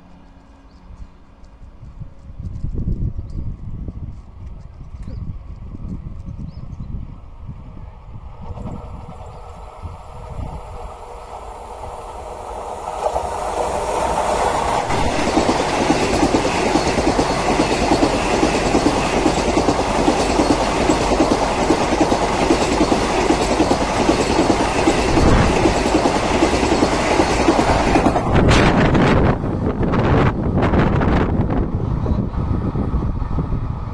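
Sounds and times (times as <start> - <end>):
train passing at high speed: 6.9 - 33.9.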